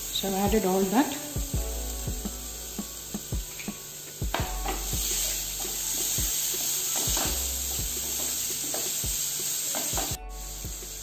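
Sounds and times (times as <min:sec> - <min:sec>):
mushrooms sizzling in oil: 0:00.0 - 0:11.0
wooden spatula scraping a pan: 0:03.5 - 0:10.2.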